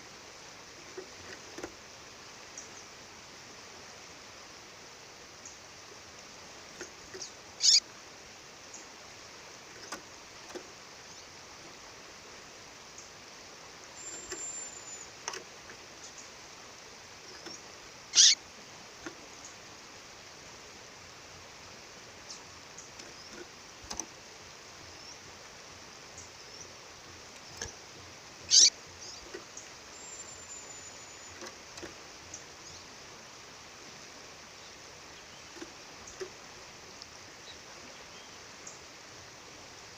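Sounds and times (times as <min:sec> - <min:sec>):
bird sharp downward calls: 0:07.6 - 0:07.8, 0:18.1 - 0:18.4, 0:28.5 - 0:29.2.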